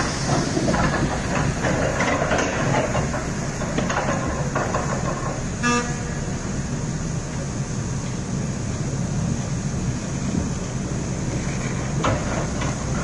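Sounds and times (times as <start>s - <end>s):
machine clanks and knocks: 0.0s - 5.5s, 11.6s - 13.0s
excavator diesel engine running: 0.0s - 13.0s
short horn toot: 5.6s - 6.2s.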